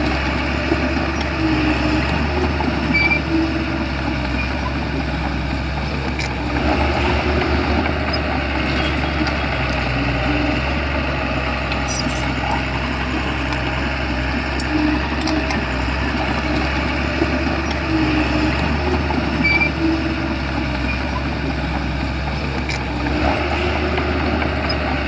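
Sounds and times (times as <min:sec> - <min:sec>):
bulldozer diesel engine running: 0:00.0 - 0:25.0
metallic clicks and squeaks: 0:11.7 - 0:12.8, 0:22.3 - 0:23.0.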